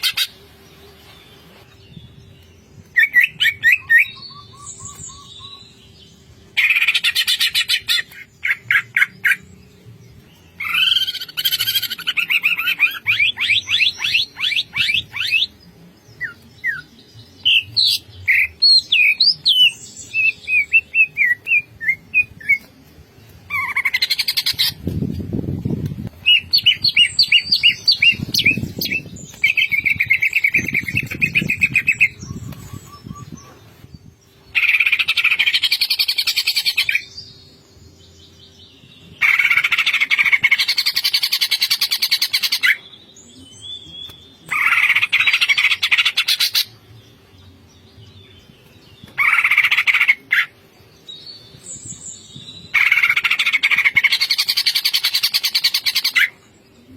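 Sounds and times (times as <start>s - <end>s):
bird singing varied song: 0.0s - 56.9s.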